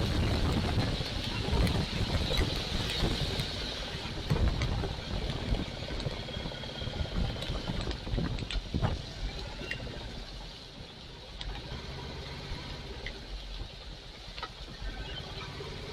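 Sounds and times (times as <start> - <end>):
wind rushing over microphone: 0.0 - 10.4
tyres hissing on wet road: 0.0 - 15.9.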